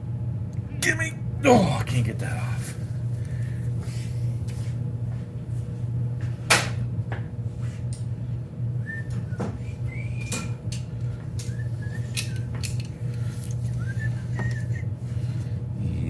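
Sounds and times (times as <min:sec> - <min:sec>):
steady low hum: 0:00.0 - 0:16.0
person whistling: 0:08.8 - 0:10.6, 0:11.4 - 0:12.5, 0:13.8 - 0:14.9.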